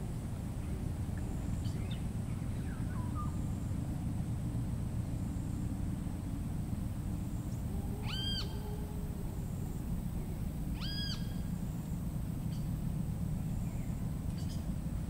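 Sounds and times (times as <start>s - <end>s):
low rumble of forest ambience: 0.0s - 15.0s
bird whistled notes: 8.0s - 8.8s, 10.8s - 11.4s.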